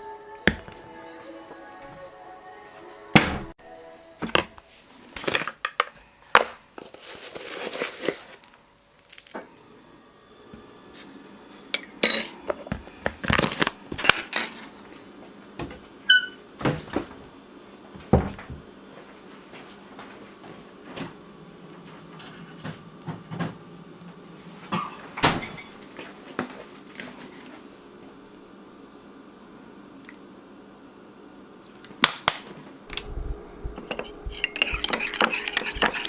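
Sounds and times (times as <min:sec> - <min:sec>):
dishes and cutlery clinking: 0:11.8 - 0:12.4, 0:33.8 - 0:36.0.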